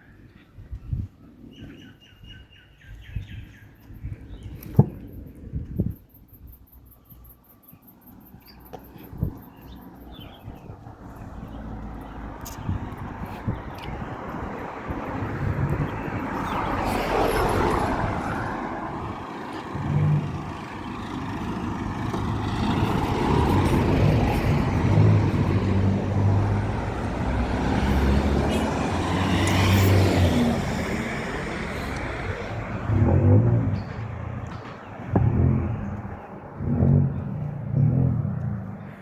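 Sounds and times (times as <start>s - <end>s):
road noise: 0.0s - 39.0s
vehicle engine running: 30.6s - 39.0s.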